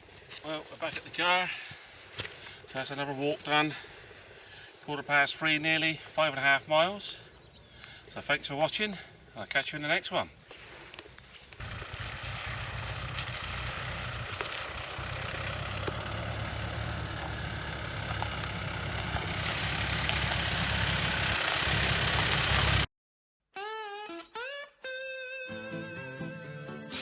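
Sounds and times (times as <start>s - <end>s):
car engine heard from inside: 11.6s - 22.9s.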